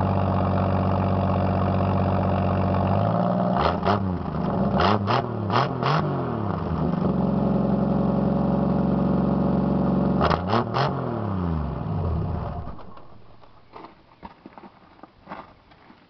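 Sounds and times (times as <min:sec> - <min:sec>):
car engine revving: 0:02.8 - 0:13.0.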